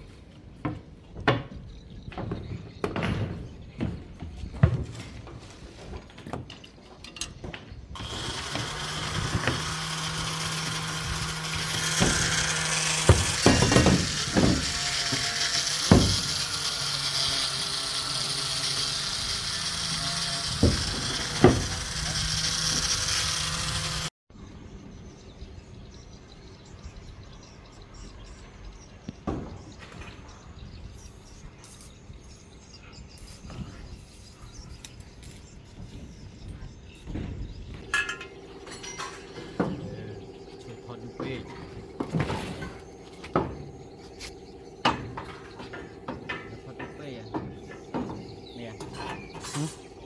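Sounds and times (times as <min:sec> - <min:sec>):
sharp knocks: 0:08.5 - 0:16.6.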